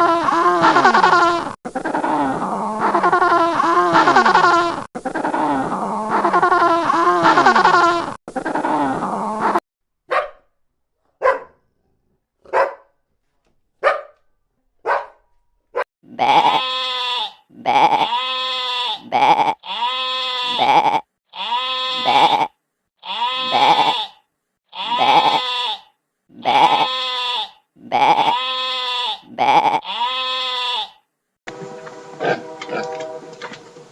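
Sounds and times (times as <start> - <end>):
long bleats: 0.0 - 9.6, 16.1 - 31.1
dog barking: 10.1 - 11.7, 12.4 - 13.0, 13.8 - 15.2.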